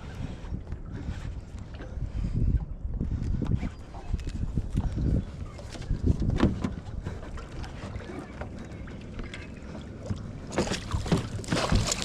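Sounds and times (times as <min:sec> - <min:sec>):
wind on microphone: 0:00.0 - 0:09.1
knocks in a boat: 0:06.1 - 0:06.9, 0:10.0 - 0:12.0.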